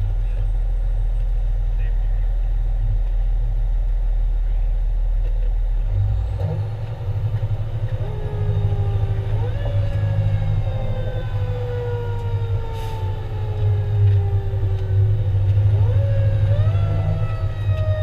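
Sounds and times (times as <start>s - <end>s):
fire engine rumbling: 0.0s - 18.0s
siren rising in pitch: 7.9s - 18.0s.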